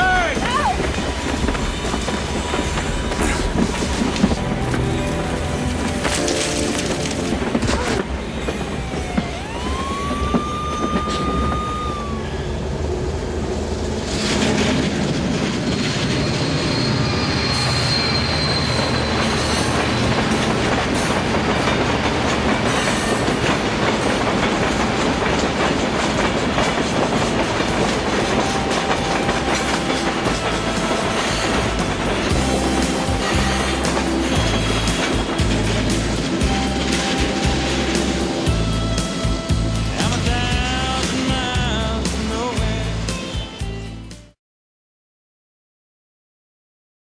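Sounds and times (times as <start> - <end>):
train wheel squeal: 0.0 - 6.1, 7.3 - 13.2, 14.1 - 41.9
train wheels clickety-clack: 0.0 - 12.0, 13.7 - 43.6
train rumble: 0.0 - 44.3.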